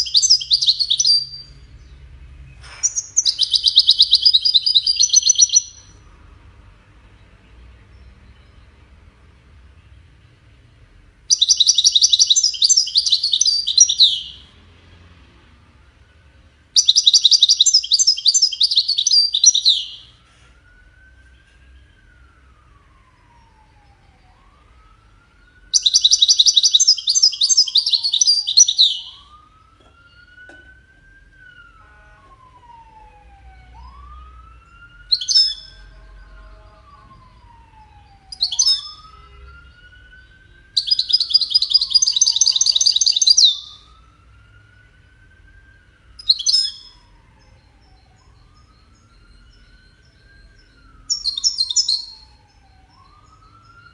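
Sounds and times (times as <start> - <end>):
bird twittering song: 0.0 - 6.0, 11.3 - 14.4, 16.8 - 20.1, 25.4 - 30.5, 33.9 - 43.8, 46.2 - 53.9.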